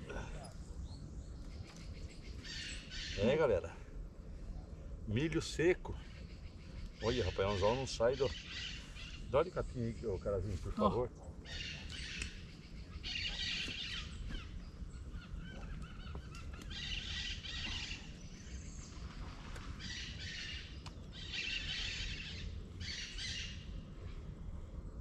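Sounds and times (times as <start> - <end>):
birds chirping in bursts: 0.0 - 25.0
steady low background noise: 0.0 - 25.0.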